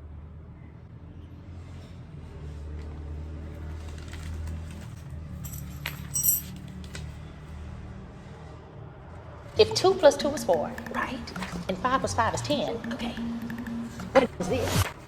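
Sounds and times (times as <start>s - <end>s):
light metallic clinks: 5.4s - 6.7s.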